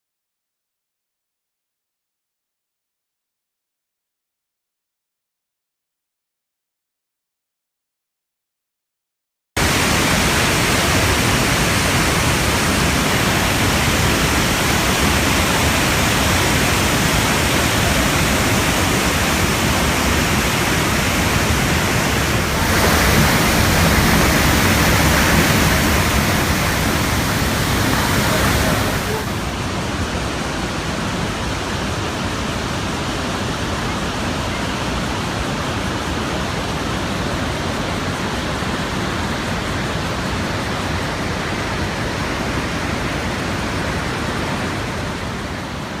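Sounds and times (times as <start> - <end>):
waterfall rushing: 9.6 - 46.0.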